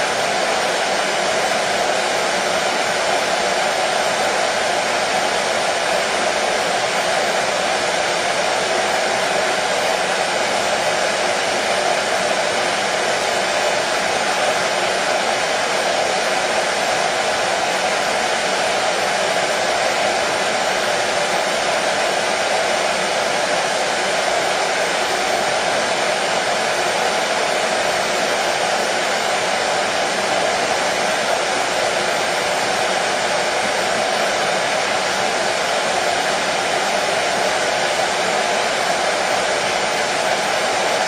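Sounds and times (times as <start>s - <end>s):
hair dryer running: 0.0s - 41.0s.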